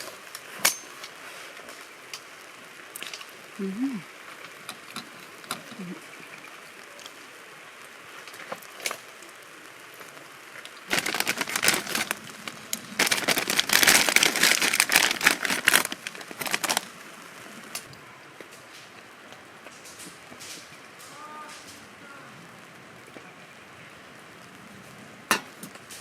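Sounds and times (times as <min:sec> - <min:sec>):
crinkling rustling handling noise: 0:10.0 - 0:17.0.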